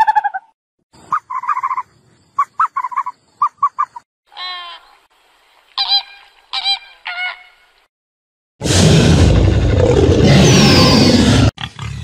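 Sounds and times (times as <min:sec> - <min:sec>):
drawn-out wavering bird call: 0:00.0 - 0:05.0, 0:05.8 - 0:07.7
birds chirping: 0:01.0 - 0:07.8.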